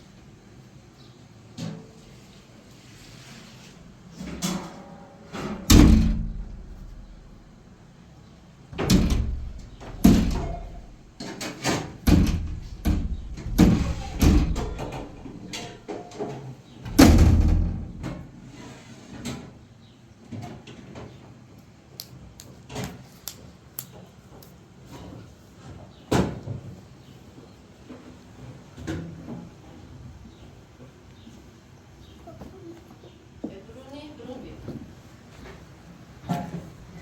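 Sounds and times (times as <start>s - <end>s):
heavy knocks and bangs: 5.7s - 7.5s, 8.8s - 15.8s, 16.9s - 18.5s.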